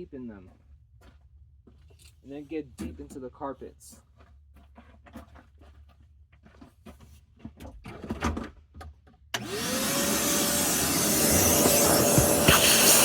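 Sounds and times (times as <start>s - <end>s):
vacuum cleaner running: 9.4s - 13.0s.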